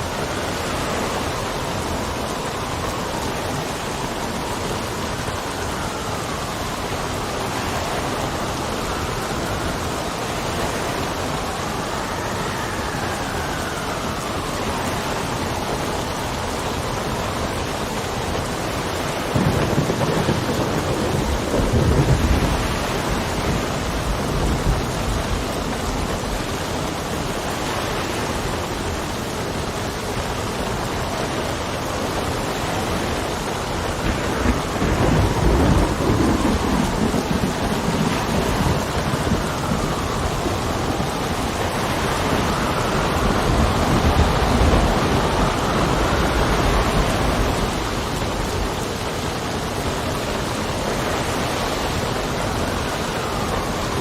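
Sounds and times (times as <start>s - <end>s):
heavy rain: 0.0s - 54.0s
wind gusting with whistle: 0.0s - 54.0s
low thunder rolls: 18.4s - 26.8s, 32.0s - 51.0s.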